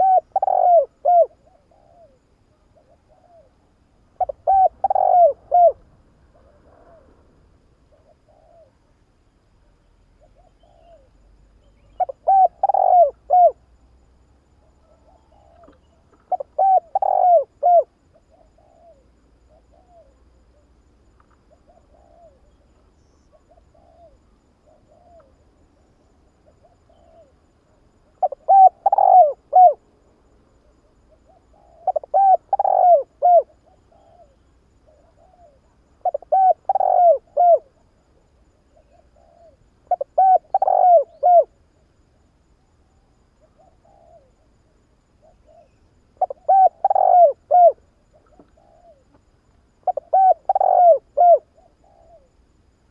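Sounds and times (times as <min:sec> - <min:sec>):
dove cooing: 0:00.0 - 0:08.8, 0:10.2 - 0:13.7, 0:14.6 - 0:20.6, 0:21.5 - 0:25.4, 0:28.1 - 0:29.8, 0:30.9 - 0:37.9, 0:38.6 - 0:41.6, 0:43.4 - 0:44.5, 0:45.2 - 0:49.2, 0:49.8 - 0:52.3.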